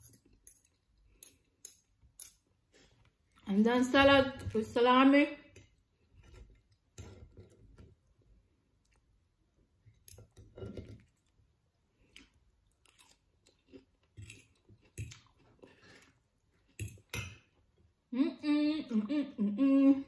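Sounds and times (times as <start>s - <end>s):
chewing salad: 5.6s - 17.9s.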